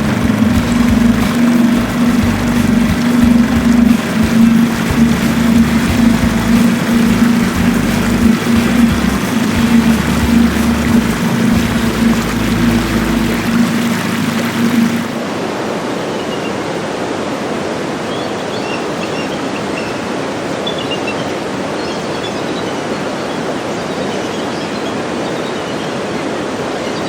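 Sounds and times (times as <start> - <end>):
boat motor humming: 0.0 - 15.3
steady rushing noise: 0.0 - 27.0.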